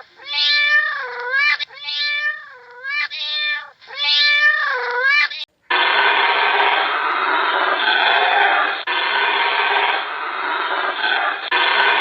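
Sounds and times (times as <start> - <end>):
cat meowing: 0.0 - 5.5.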